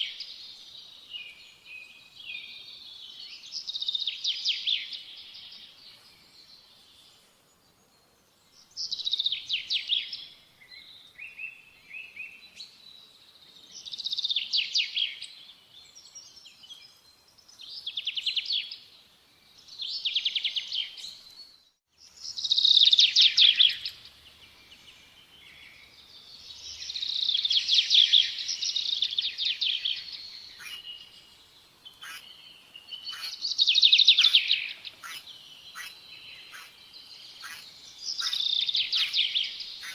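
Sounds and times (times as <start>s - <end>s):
songbird trilling: 22.3s - 24.1s, 26.5s - 31.1s, 31.9s - 39.9s.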